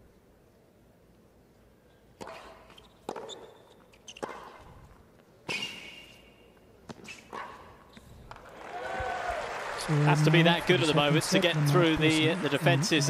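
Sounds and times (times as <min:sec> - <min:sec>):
shoe squeaks: 0:02.2 - 0:08.2
racket striking tennis ball: 0:02.2 - 0:08.4.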